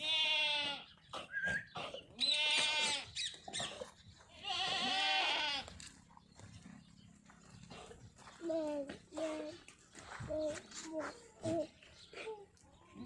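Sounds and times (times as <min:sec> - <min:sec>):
goat bleating: 0:00.0 - 0:01.0, 0:02.2 - 0:03.7, 0:04.3 - 0:05.9.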